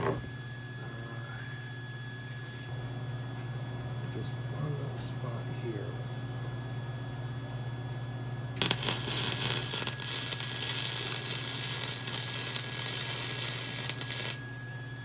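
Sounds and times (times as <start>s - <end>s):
steady electrical hum: 0.0s - 15.0s
crackling welding arc: 8.6s - 14.5s.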